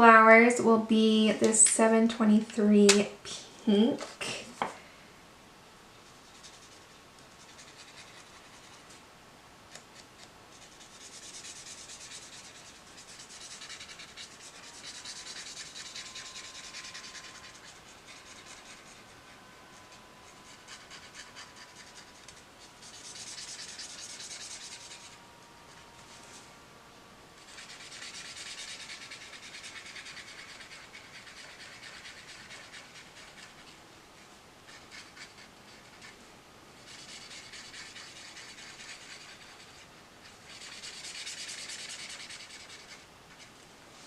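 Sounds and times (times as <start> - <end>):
marker tip rubbing on paper: 6.1 - 8.8, 10.2 - 19.1, 19.8 - 25.2, 27.4 - 33.7, 34.7 - 36.2, 36.8 - 39.8, 40.5 - 43.0.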